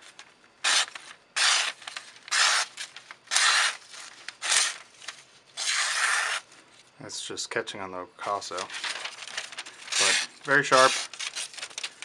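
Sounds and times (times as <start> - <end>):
knife slicing through paper: 0.6 - 3.8, 5.6 - 6.4, 8.6 - 11.8.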